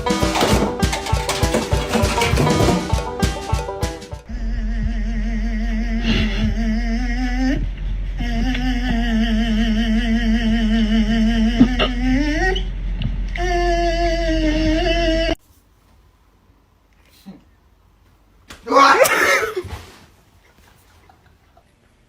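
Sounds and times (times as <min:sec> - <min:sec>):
voice holding wavering notes: 0:04.3 - 0:12.7.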